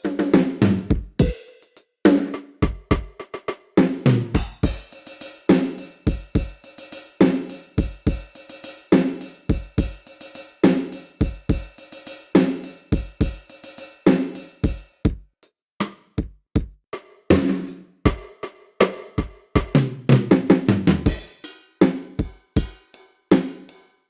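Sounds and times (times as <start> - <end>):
light drum strokes: 3.8 - 15.2, 19.6 - 23.7
cymbal or hi-hat ticks: 4.5 - 14.8.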